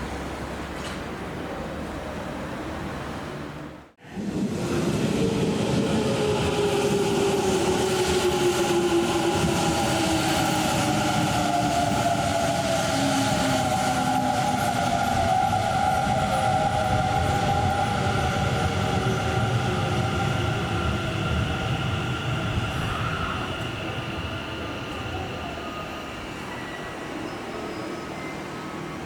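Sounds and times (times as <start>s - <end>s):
train wheels rumbling: 4.0s - 27.2s.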